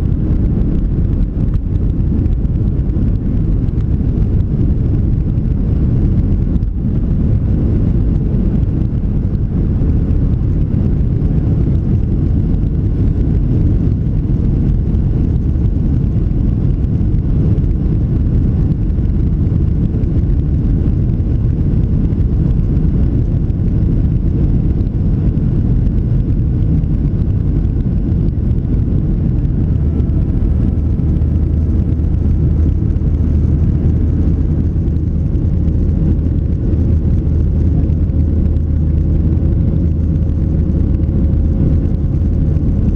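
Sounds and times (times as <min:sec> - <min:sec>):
jet engines rumbling: 0:00.0 - 0:42.9
low hum: 0:00.0 - 0:42.9
rushing air: 0:00.0 - 0:42.9.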